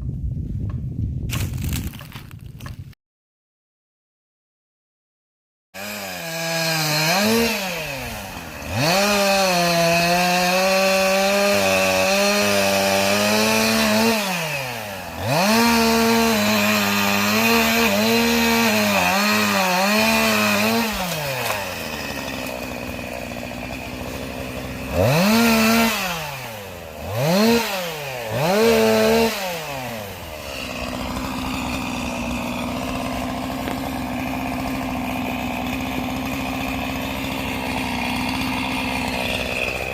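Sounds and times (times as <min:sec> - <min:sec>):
chainsaw cutting logs: 0:05.8 - 0:39.9.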